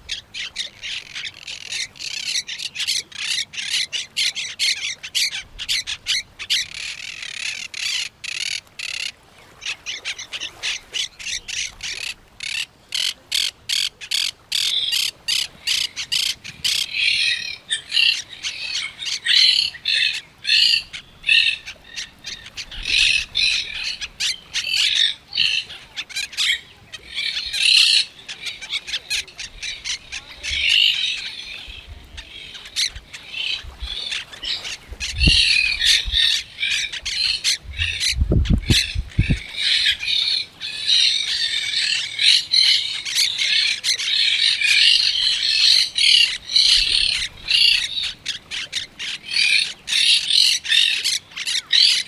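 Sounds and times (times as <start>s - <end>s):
parrots squawking: 10.6s - 52.0s.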